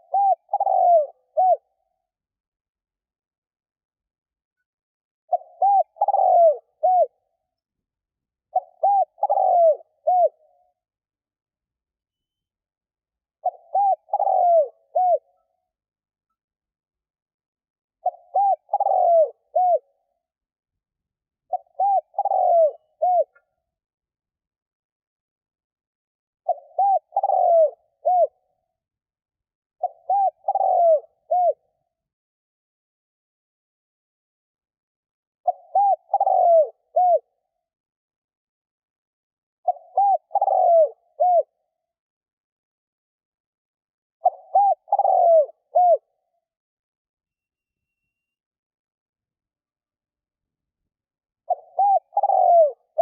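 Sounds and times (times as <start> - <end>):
dove cooing: 0.0 - 2.0, 5.3 - 7.4, 8.5 - 10.7, 13.4 - 15.5, 18.0 - 20.0, 21.5 - 23.6, 26.5 - 28.4, 29.8 - 31.7, 35.4 - 37.4, 39.6 - 41.6, 44.2 - 46.2, 51.4 - 53.0.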